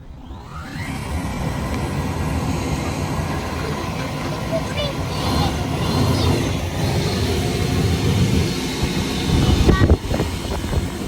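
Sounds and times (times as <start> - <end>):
brush rattling inside vent duct: 2.3 - 11.0.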